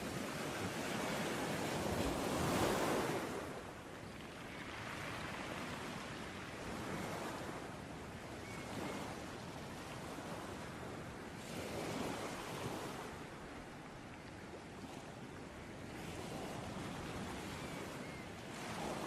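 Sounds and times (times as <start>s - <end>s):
ocean waves breaking: 0.0s - 3.8s, 16.0s - 19.0s.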